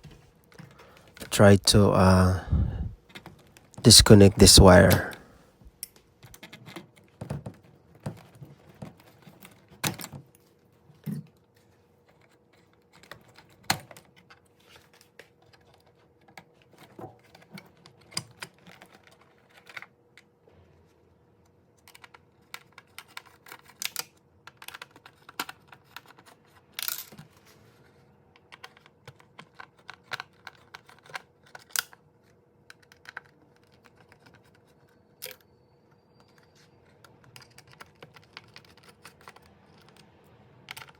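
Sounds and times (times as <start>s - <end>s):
faint steady hum: 0.7s - 3.0s, 3.9s - 5.3s
plastic parts clicking and rattling: 21.8s - 27.4s, 28.4s - 35.4s, 36.2s - 40.1s, 40.7s - 40.9s.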